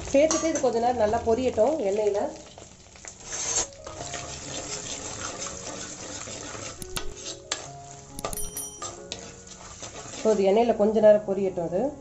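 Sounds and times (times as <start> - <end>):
food sizzling in hot oil: 0.0 - 8.2, 8.8 - 10.8
metal clinks against pan: 8.2 - 9.2.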